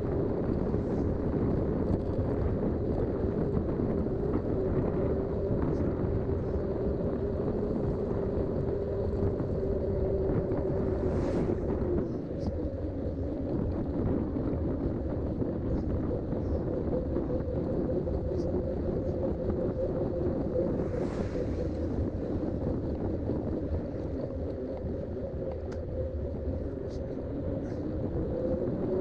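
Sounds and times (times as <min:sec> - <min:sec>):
wind rushing over microphone: 0:00.0 - 0:29.0.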